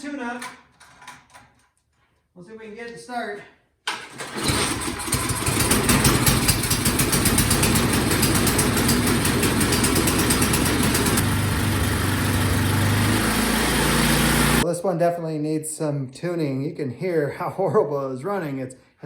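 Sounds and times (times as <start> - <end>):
snowblower engine hunting: 3.9 - 14.6.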